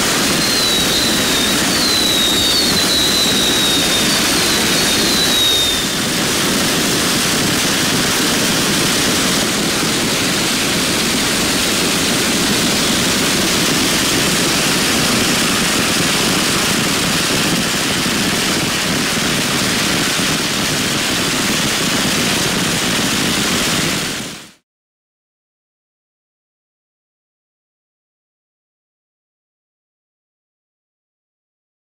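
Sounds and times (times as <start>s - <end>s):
firecrackers crackling: 0.0s - 24.6s.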